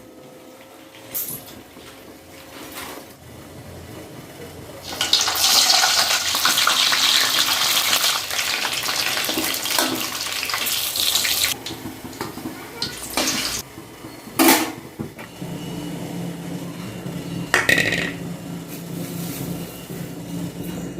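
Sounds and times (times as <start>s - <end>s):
water running from kitchen tap: 4.8s - 13.6s.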